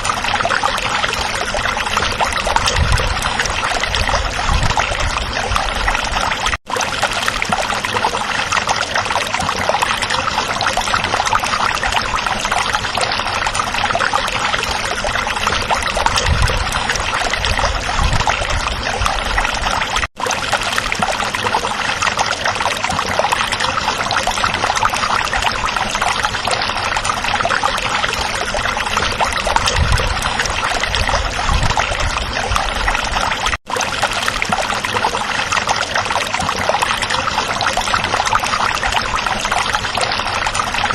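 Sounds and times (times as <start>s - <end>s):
stream babbling over rocks: 0.0s - 40.9s.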